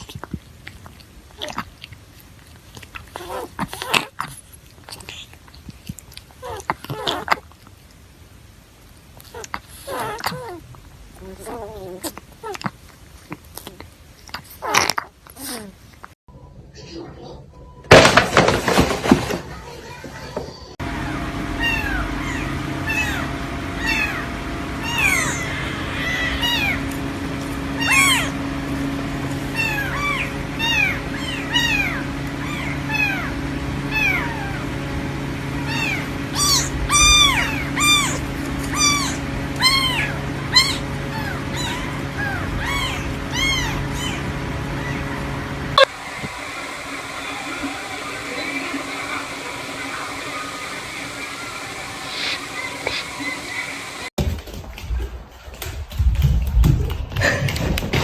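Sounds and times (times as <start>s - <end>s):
steady low hum: 20.8s - 54.1s
cat meowing: 21.6s - 27.1s, 27.7s - 28.4s, 29.6s - 34.7s, 35.7s - 44.2s.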